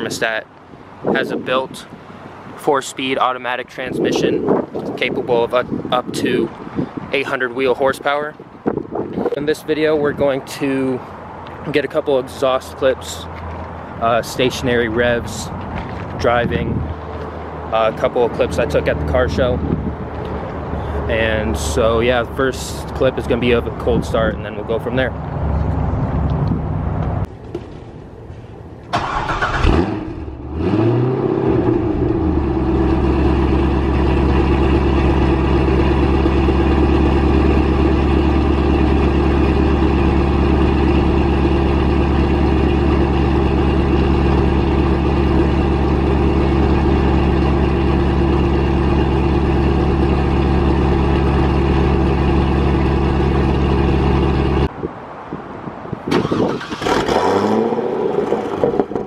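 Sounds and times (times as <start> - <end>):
different engine sound: 28.8 - 54.8
car engine idling: 31.4 - 54.7.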